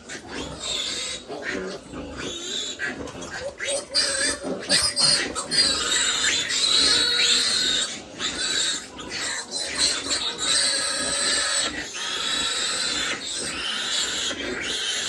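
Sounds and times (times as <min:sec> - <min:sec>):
pigs squealing: 0:00.0 - 0:15.0.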